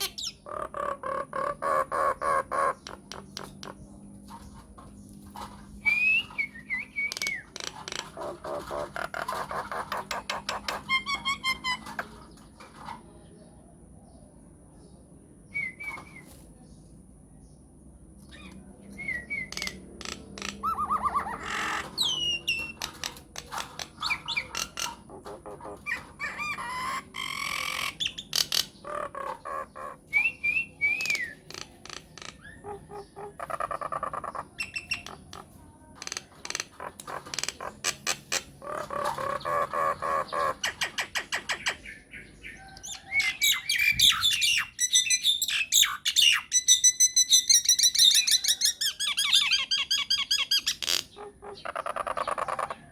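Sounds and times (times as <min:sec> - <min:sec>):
myna whistles squawks and chatter: 0:05.8 - 0:07.5, 0:18.3 - 0:22.8, 0:29.8 - 0:31.5.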